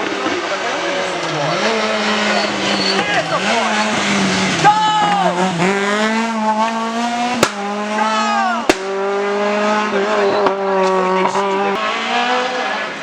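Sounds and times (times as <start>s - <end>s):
rally car engine revving: 0.0s - 13.0s
sharp bangs: 7.3s - 7.9s, 8.6s - 9.2s.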